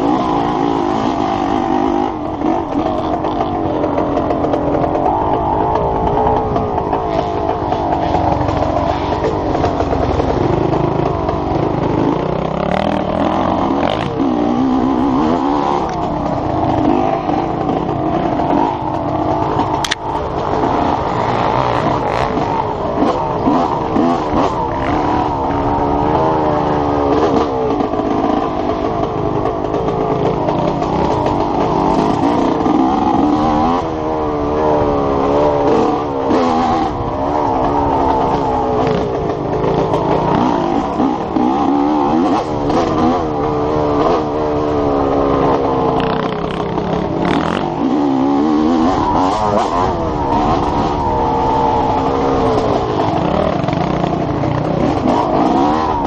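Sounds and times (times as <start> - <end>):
dirt bike engine revving: 0.0 - 56.0
wind on microphone: 1.1 - 11.9, 28.7 - 56.0.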